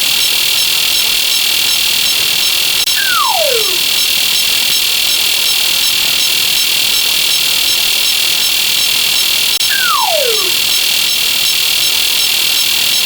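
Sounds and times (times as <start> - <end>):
slide whistle gliding down: 2.9 - 3.8, 9.6 - 10.6.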